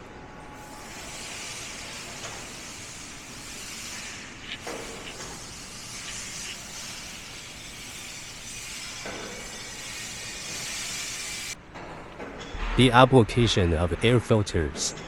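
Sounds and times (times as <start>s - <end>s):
factory floor hissing: 0.4s - 11.6s.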